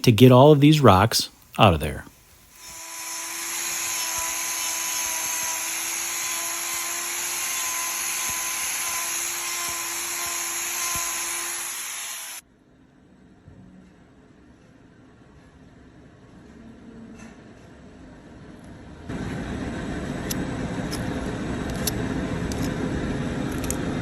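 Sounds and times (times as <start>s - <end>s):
power grinder whining on hoof: 2.6s - 12.4s.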